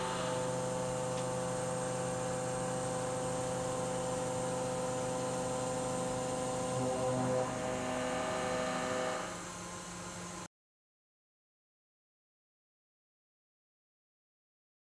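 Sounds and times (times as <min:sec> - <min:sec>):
milling machine cutting hum: 0:00.0 - 0:09.5.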